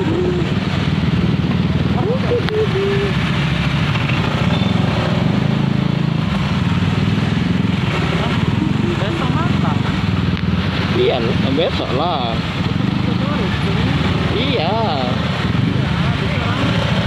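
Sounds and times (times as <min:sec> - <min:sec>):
small engine running: 0:00.0 - 0:15.5
person speaking: 0:01.9 - 0:03.2.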